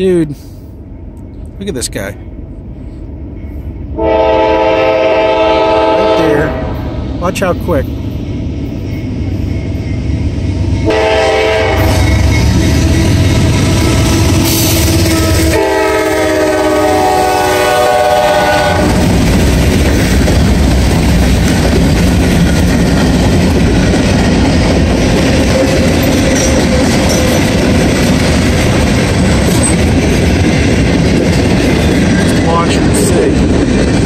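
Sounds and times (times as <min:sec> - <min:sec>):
locomotive horn: 0:04.0 - 0:06.8, 0:10.8 - 0:19.0.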